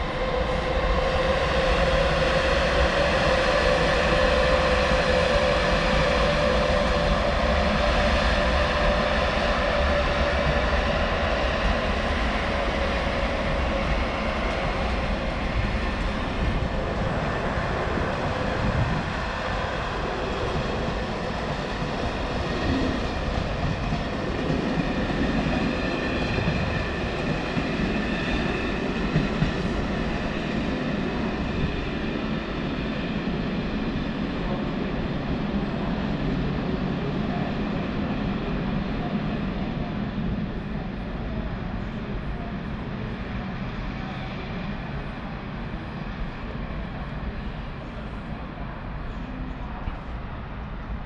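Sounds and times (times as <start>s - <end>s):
train running: 0.0s - 51.0s.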